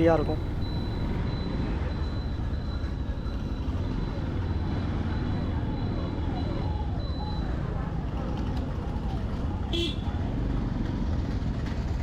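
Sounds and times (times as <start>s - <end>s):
vehicle engine and tyres rumbling: 0.0s - 12.0s.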